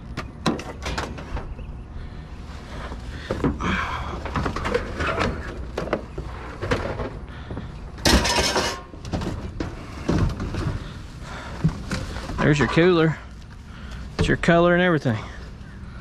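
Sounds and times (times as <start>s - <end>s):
low steady rumble: 0.0s - 16.0s
junk knocking and clattering: 0.2s - 1.6s, 3.2s - 13.2s.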